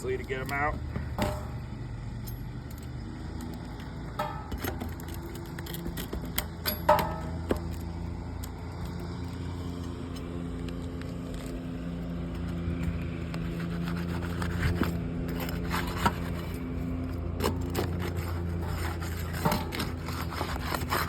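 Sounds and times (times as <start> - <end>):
ringing metal hammer strikes: 4.1 - 4.8, 6.6 - 7.6.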